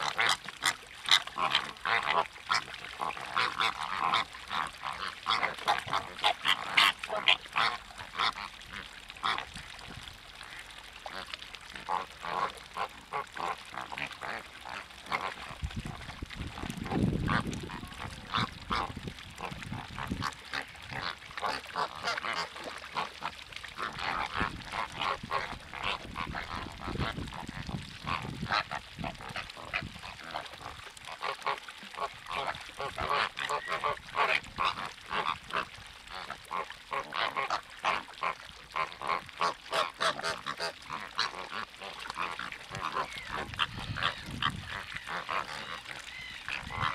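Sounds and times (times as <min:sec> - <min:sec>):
flock of birds calling: 0:42.8 - 0:46.9.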